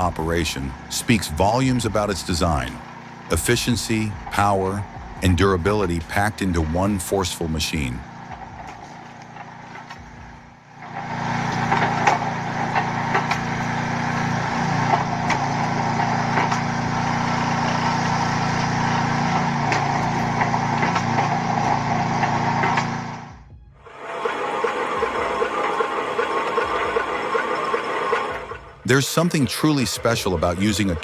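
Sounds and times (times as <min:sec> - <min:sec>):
small engine running: 0:00.0 - 0:31.0
sharp knocks and clicks: 0:14.8 - 0:16.8, 0:19.3 - 0:23.4.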